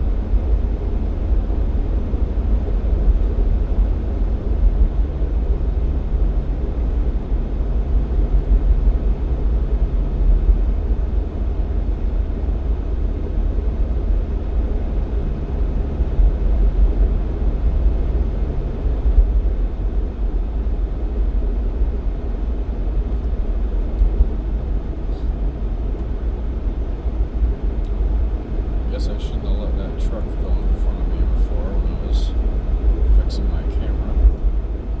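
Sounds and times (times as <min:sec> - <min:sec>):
car engine and road noise: 0:00.0 - 0:35.0
faint hum: 0:19.7 - 0:35.0.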